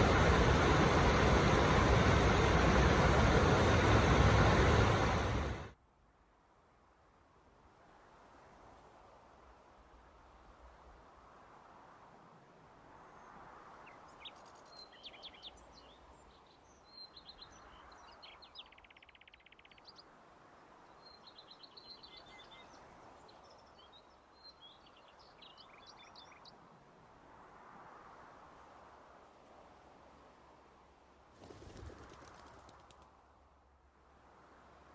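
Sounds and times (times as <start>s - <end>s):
soft rushing background: 0.0s - 5.8s.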